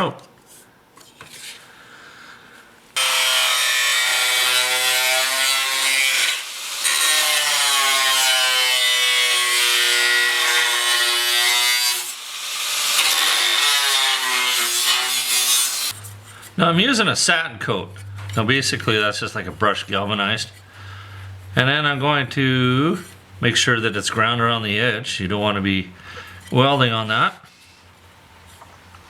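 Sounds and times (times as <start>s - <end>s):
power tool screeching through steel: 3.0s - 16.0s.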